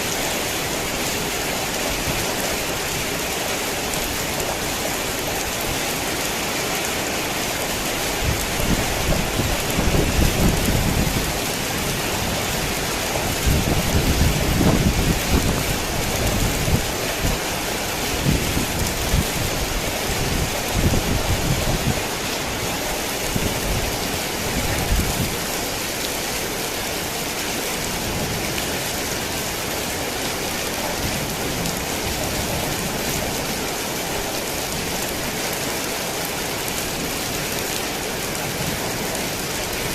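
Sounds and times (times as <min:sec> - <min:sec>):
heavy rain falling: 0:00.0 - 0:39.9
rolling thunder rumbling: 0:08.3 - 0:17.0.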